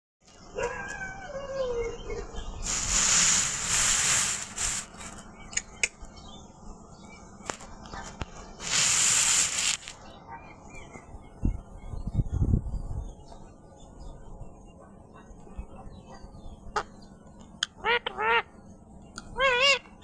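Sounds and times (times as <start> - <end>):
parrot hissing: 2.6 - 5.2, 8.6 - 10.0
parrot warbling call: 19.3 - 19.9.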